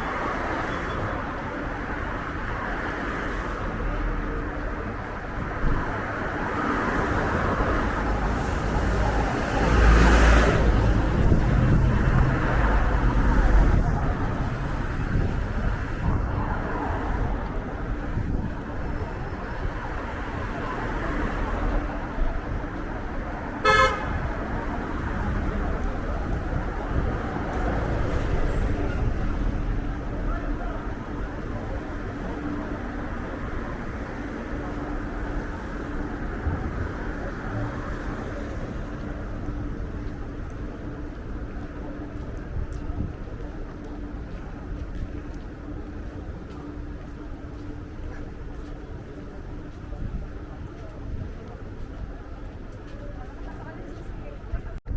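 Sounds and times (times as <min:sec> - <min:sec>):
passing traffic: 0:00.0 - 0:54.9
wind buffeting microphone: 0:07.2 - 0:20.6, 0:24.0 - 0:32.0, 0:42.2 - 0:52.7.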